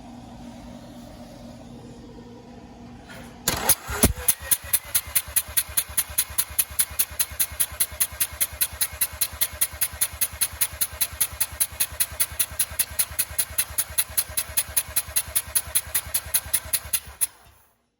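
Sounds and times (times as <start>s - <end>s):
engine cranking on starter motor: 3.4s - 17.7s.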